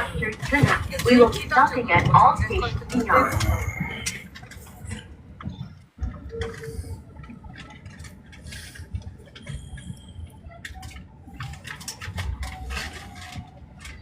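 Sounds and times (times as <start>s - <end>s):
train rumble from inside car: 0.0s - 14.0s.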